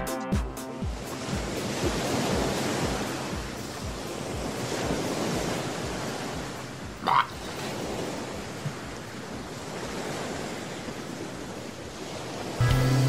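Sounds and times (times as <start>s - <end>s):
waves washing onto beach: 0.8s - 13.0s.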